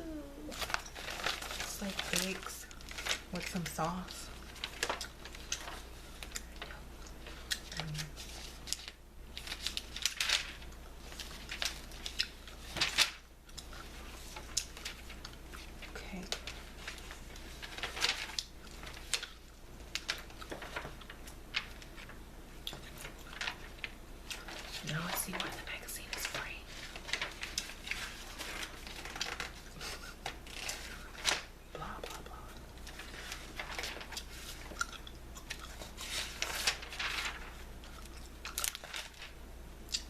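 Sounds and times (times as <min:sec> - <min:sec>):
magazine pages rustling: 0:00.4 - 0:32.2, 0:32.8 - 0:34.8, 0:35.6 - 0:39.4
close-miked gum chewing: 0:34.2 - 0:36.1.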